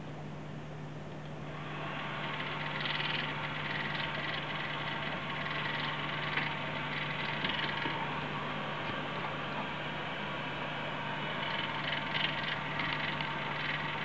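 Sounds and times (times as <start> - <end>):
computer cooling fan whirring: 0.0 - 14.0
harsh clacking rattle: 2.0 - 8.0, 11.4 - 14.0.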